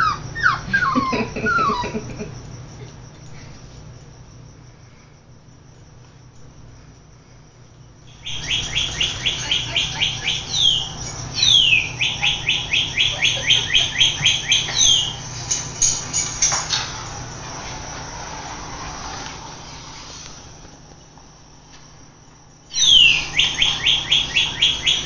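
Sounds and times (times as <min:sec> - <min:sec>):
toy bird playing birdsong: 0:08.1 - 0:15.2.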